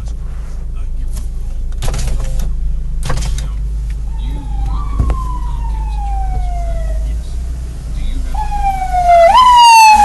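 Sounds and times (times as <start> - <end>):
road rumble inside moving car: 0.0 - 10.0
emergency vehicle siren wailing: 4.0 - 10.0.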